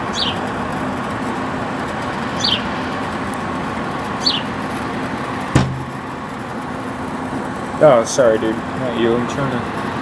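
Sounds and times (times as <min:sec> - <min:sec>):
air conditioner humming: 0:00.0 - 0:10.0
bird chirping: 0:00.1 - 0:00.4, 0:02.4 - 0:02.7, 0:04.2 - 0:04.5
sharp knock: 0:05.6 - 0:06.0.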